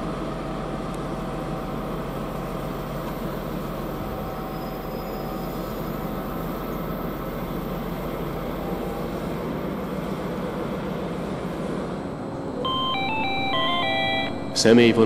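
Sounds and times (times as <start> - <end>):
train rolling rumble: 0.0 - 15.0
faint hum: 12.1 - 15.0.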